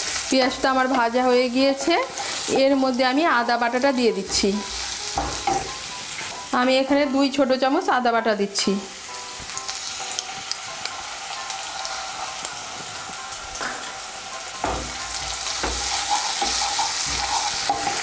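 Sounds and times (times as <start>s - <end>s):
onions sizzling in oil: 0.0s - 18.0s
spatula stirring in pan: 15.0s - 18.0s.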